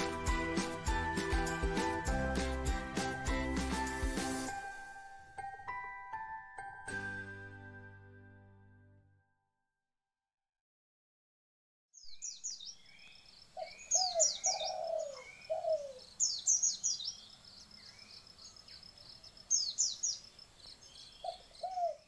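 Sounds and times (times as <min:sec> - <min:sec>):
birds chirping: 0:12.0 - 0:22.0.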